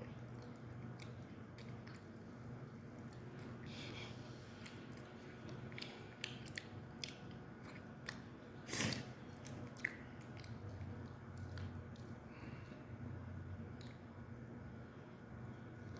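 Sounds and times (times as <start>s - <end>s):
person chewing food: 0.0s - 12.7s.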